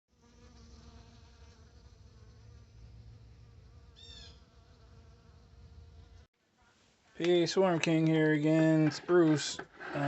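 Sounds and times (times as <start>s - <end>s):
bees buzzing: 0.1s - 6.3s.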